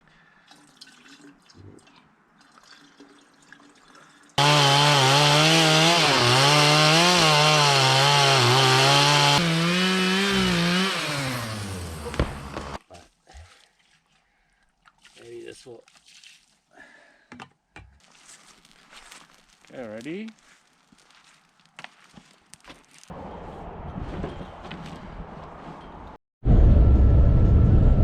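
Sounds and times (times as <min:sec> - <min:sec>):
chainsaw running at high revs: 0:04.4 - 0:12.8.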